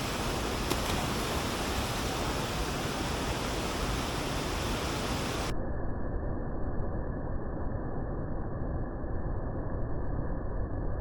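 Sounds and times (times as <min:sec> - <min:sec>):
waterfall roaring: 0:00.0 - 0:05.5.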